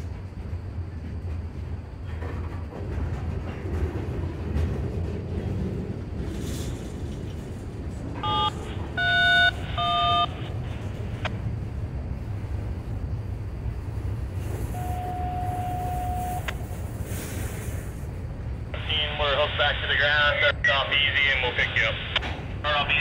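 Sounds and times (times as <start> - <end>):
freight train wheels rumbling on rail: 0.0 - 23.0
short beeps: 8.2 - 11.3, 14.7 - 16.6.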